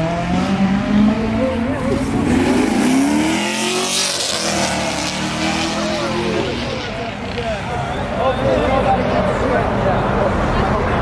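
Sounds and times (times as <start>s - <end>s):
car engine revving: 0.0s - 7.6s
people talking: 0.4s - 11.0s.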